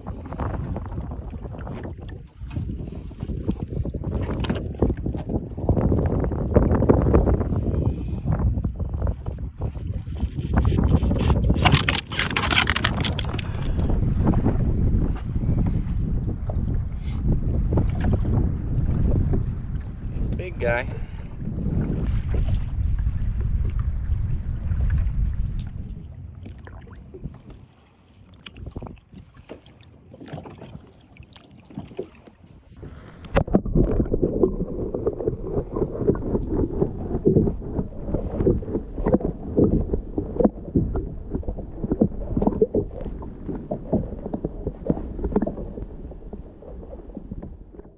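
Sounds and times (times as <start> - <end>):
boat knocks and clatter: 0.0 - 7.5, 8.6 - 20.4
water splashing against kayak hull: 0.0 - 20.4, 21.2 - 47.9.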